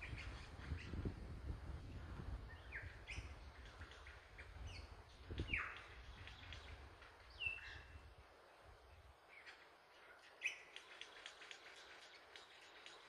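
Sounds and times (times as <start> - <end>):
birds chirping and whistling: 0.0 - 1.1, 2.4 - 8.0, 10.2 - 13.0.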